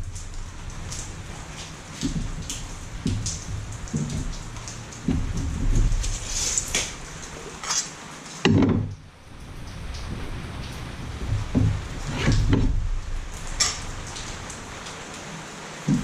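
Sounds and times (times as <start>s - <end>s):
wood knocking and clattering: 0.2s - 7.8s, 8.4s - 9.0s, 11.2s - 12.9s.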